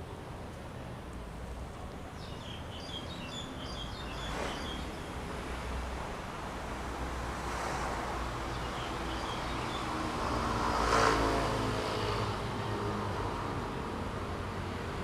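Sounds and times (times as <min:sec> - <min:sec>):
outdoor background noise: 0:00.0 - 0:15.0
vehicle passing by: 0:07.4 - 0:13.0.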